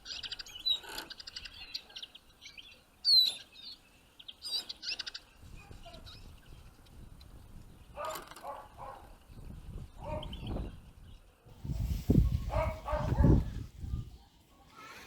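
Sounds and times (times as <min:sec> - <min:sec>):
dog barking: 0:08.0 - 0:09.1, 0:10.0 - 0:10.4, 0:12.4 - 0:13.6.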